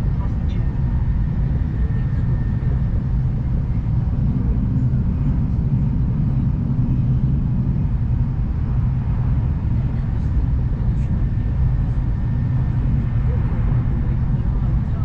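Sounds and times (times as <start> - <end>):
train interior low rumble: 0.0 - 15.0.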